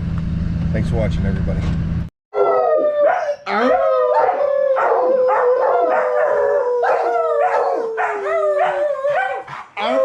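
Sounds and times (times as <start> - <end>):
canine long howl: 2.4 - 10.0.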